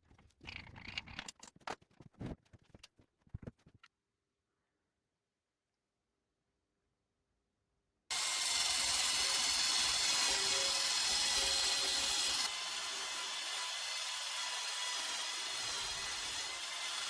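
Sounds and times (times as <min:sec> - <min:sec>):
power tool running: 0:08.1 - 0:17.0.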